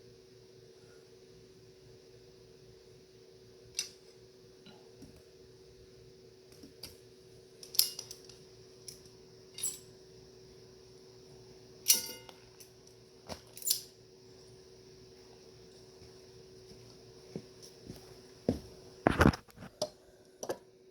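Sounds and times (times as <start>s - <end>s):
steady low hum: 0.0s - 20.9s
sharp metallic clink: 11.9s - 12.4s.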